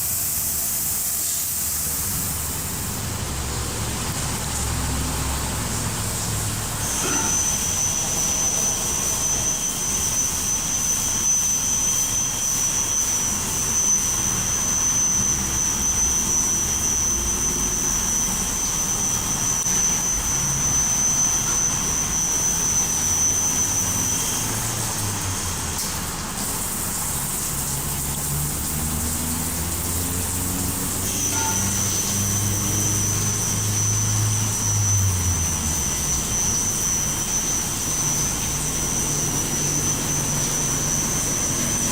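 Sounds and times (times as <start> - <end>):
high whine: 0.0 - 41.9
water spraying: 0.0 - 41.9
low motor hum: 27.2 - 41.9.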